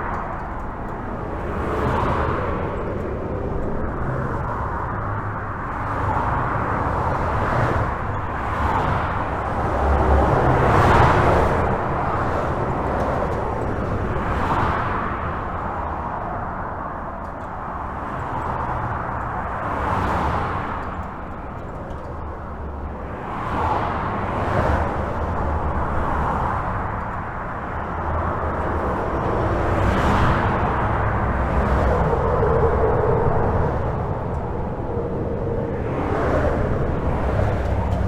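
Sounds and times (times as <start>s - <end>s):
highway traffic rumble: 0.0s - 38.0s
vehicle passing: 23.4s - 38.0s.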